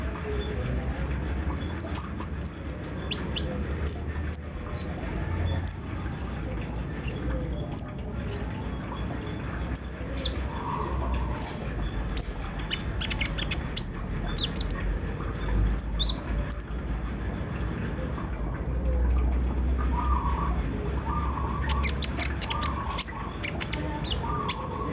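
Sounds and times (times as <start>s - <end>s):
sunbird high chirps: 1.7s - 14.9s, 15.7s - 16.9s, 21.1s - 24.9s.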